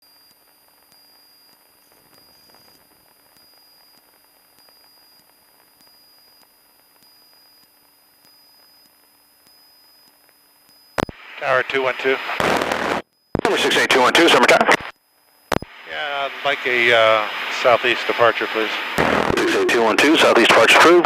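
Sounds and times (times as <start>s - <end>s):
thin electronic whine: 0.0s - 21.0s
light crackles: 0.1s - 11.2s
radio static hiss: 11.0s - 14.9s, 15.5s - 21.0s.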